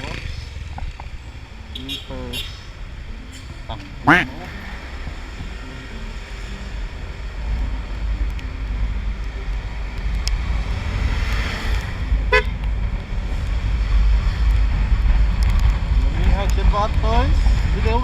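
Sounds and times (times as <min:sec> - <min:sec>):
scooter horn toot: 0:04.1 - 0:04.5.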